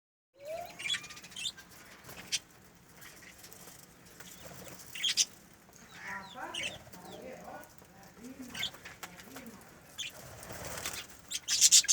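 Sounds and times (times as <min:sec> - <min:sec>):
birds chirping: 0:00.4 - 0:11.9.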